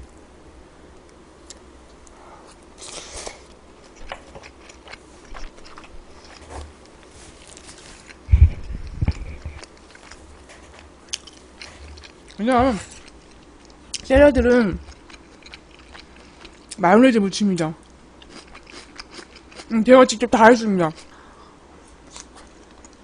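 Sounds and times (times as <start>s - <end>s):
biting and chewing: 2.5s - 16.8s, 17.9s - 19.7s, 22.0s - 23.0s
heavy low thuds: 8.3s - 9.6s, 12.5s - 12.9s, 14.1s - 14.9s.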